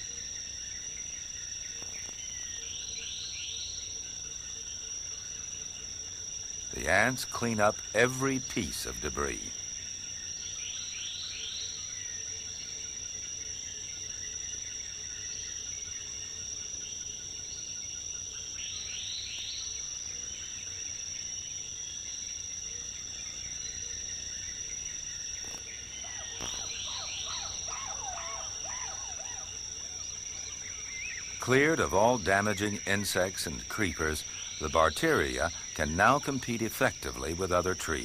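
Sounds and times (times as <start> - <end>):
high-pitched insect drone: 0.0 - 38.0
quick bird calls: 25.4 - 31.5.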